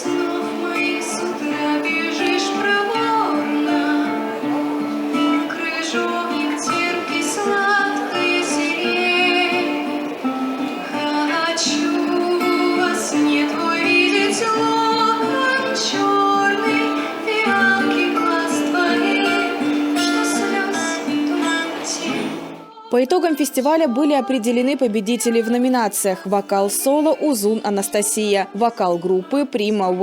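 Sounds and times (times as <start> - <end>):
plucked guitar: 0.0 - 22.7
woman singing: 0.0 - 30.0.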